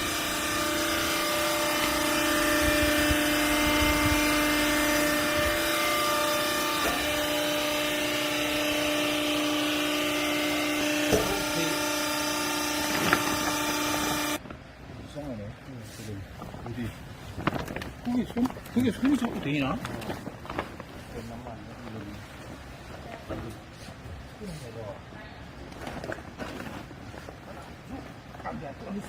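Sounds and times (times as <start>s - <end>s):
baler machine whine: 0.0s - 14.4s.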